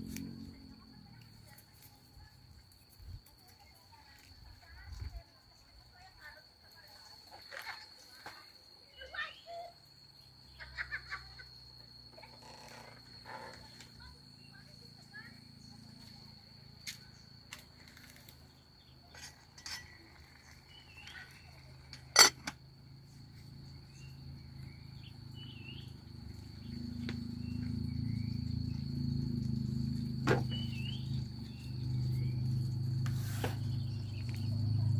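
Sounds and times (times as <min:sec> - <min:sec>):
high insect trill: 0:00.0 - 0:34.9.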